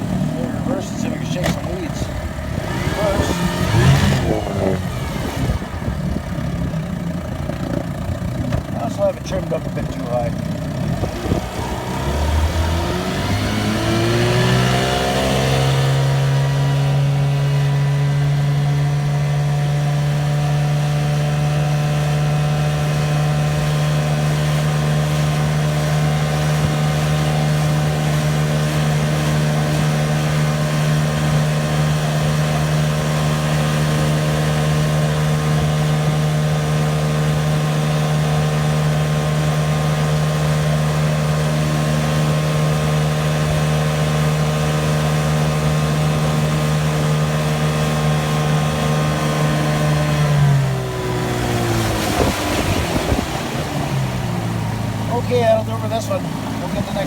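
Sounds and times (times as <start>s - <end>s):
outboard motor revving: 0.0s - 57.0s.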